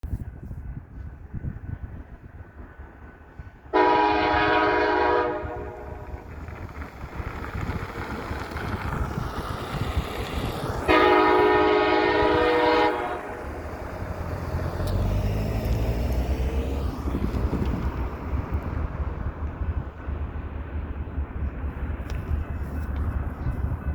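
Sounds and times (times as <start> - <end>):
locomotive air horn blasts: 3.7 - 6.2, 10.8 - 14.2
low engine rumble: 3.8 - 23.9.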